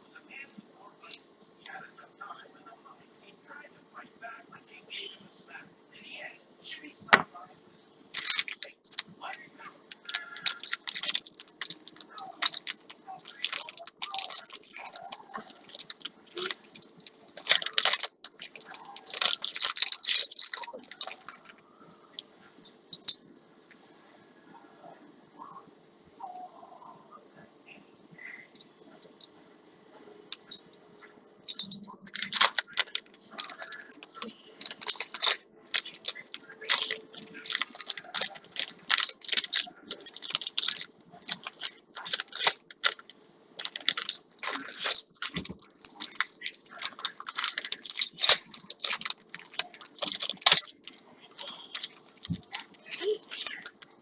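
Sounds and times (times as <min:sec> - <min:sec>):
packaging crinkling and rustling: 0:08.2 - 0:09.1, 0:09.9 - 0:22.4, 0:30.4 - 0:54.0.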